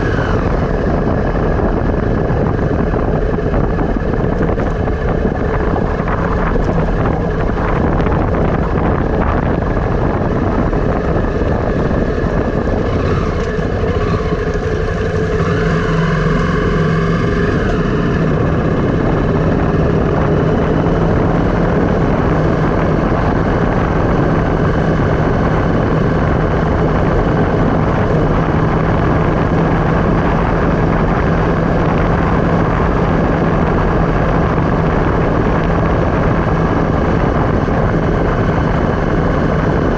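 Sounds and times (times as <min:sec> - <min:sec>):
bending tone: 0:00.0 - 0:39.9
steady low hum: 0:00.0 - 0:39.9
wind on microphone: 0:00.0 - 0:39.9.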